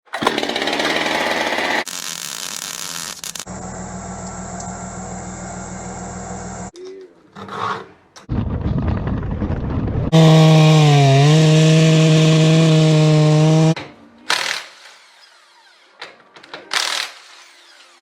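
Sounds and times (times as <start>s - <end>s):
chainsaw at high revs: 0.2s - 1.9s, 10.2s - 13.8s.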